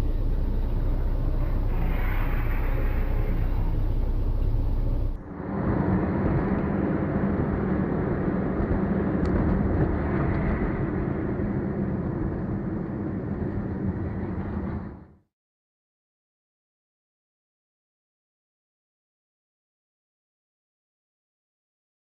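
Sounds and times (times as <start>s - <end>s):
car driving: 0.0s - 15.0s.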